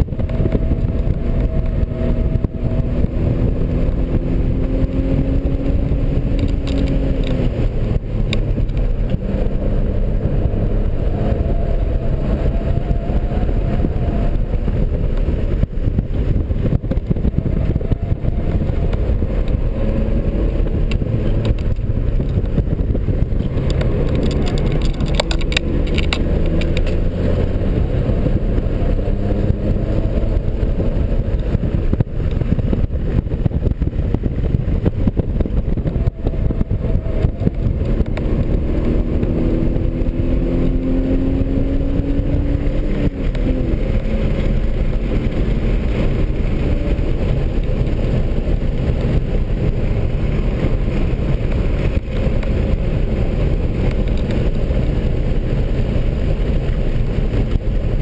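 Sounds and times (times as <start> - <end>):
car engine running hard: 0.0 - 58.0
road and wind noise: 0.0 - 58.0
rattle: 23.3 - 27.0.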